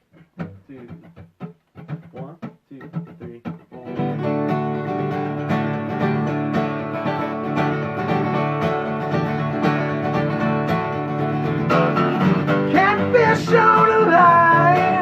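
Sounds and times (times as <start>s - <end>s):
banjo and guitar picking: 0.0s - 15.0s
bluegrass band playing: 3.0s - 15.0s.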